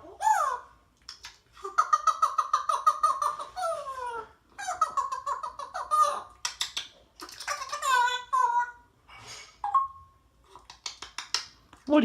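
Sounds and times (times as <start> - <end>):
parrot warbling chatter: 0.0 - 8.9
parrot squawk: 1.7 - 6.4, 7.2 - 8.9.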